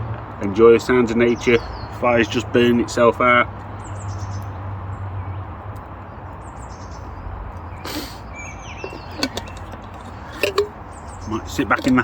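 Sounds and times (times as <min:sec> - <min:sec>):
birds chirping: 0:01.1 - 0:12.0
background hiss: 0:07.8 - 0:08.3.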